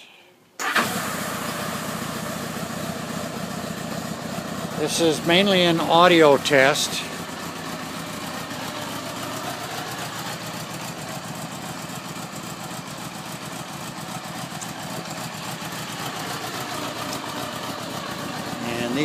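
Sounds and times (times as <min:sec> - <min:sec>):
motorcycle engine idling: 0:01.2 - 0:19.0.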